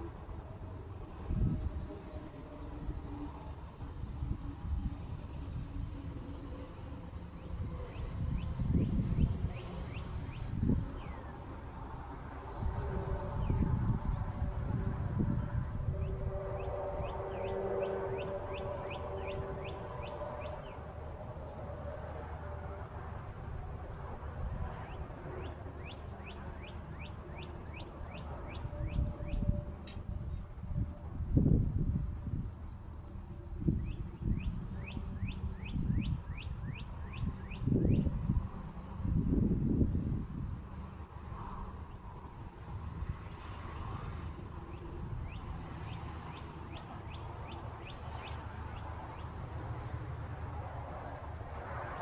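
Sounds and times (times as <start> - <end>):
songbird singing: 7.2 - 11.7, 12.8 - 21.9, 24.6 - 30.5, 32.4 - 38.4, 44.7 - 49.9.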